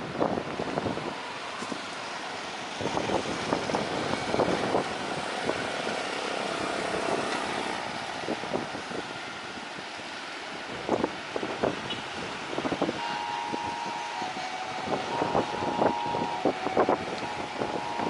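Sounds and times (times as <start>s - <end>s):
wind buffeting microphone: 0.0s - 1.9s, 2.5s - 18.0s
vehicle passing: 2.7s - 8.3s.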